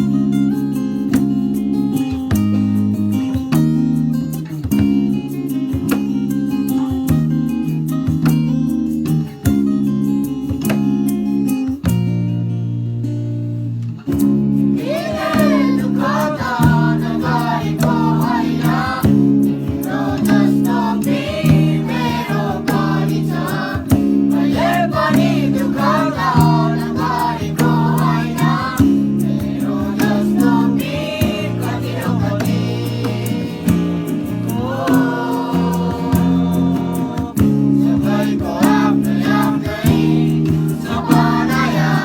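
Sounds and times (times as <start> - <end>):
strummed acoustic guitar: 0.0 - 42.0
boys singing together: 14.8 - 42.0.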